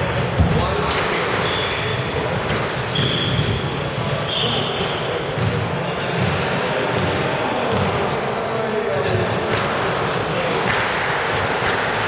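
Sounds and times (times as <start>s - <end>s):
murmur of background voices: 0.0s - 12.0s
shoes squeaking on floor: 1.4s - 5.1s.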